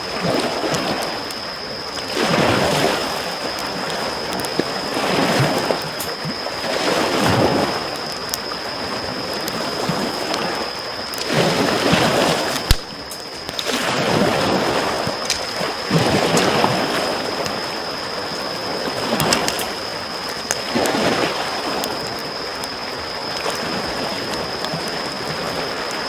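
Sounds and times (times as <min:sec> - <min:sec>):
small waves washing on shore: 0:00.0 - 0:26.0
campfire crackling and popping: 0:00.1 - 0:26.0.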